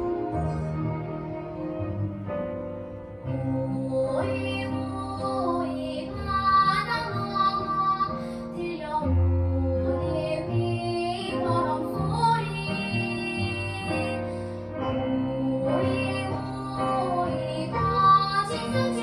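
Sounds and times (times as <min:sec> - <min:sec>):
instrumental accompaniment with bass: 0:00.0 - 0:19.0
child singing: 0:03.4 - 0:14.2, 0:15.3 - 0:19.0.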